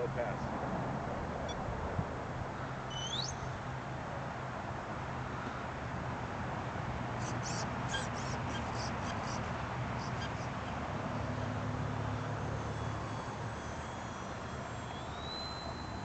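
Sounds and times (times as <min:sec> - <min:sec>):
small bird chirping: 0:02.9 - 0:03.6, 0:07.2 - 0:10.8, 0:12.8 - 0:16.0
low hum: 0:10.3 - 0:16.0.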